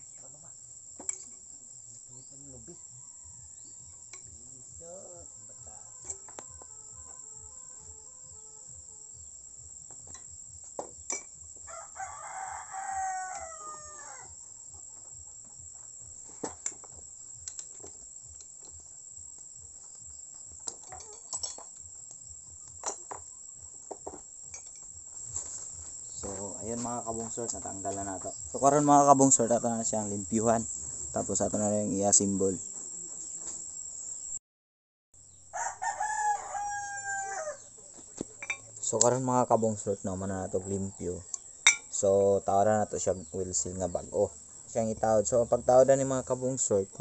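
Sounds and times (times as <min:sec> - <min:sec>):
crickets chirring: 0:00.0 - 0:34.4, 0:35.2 - 0:47.0
metal tools clicking and tapping: 0:01.0 - 0:01.4, 0:11.0 - 0:11.4, 0:16.6 - 0:18.8, 0:20.5 - 0:21.9, 0:24.5 - 0:25.0, 0:38.3 - 0:39.2
rooster crowing: 0:02.6 - 0:04.2, 0:11.6 - 0:14.5, 0:35.5 - 0:37.9.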